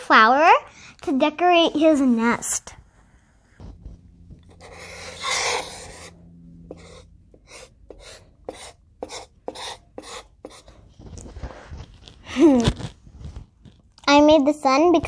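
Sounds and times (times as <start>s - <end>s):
pen scratching on paper: 3.6s - 10.9s.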